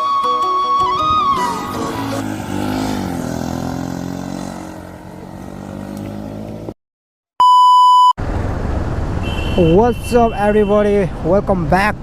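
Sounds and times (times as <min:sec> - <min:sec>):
intro music with held notes: 0:00.0 - 0:02.4
road and wind noise: 0:00.9 - 0:06.8, 0:08.2 - 0:12.0
loud electronic beep: 0:07.4 - 0:08.2.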